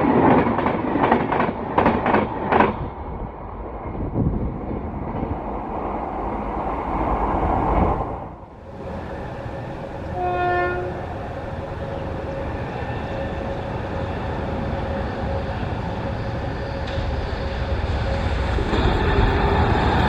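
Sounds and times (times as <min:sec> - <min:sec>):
train rumbling: 0:00.0 - 0:20.0
train horn blast: 0:10.0 - 0:16.4.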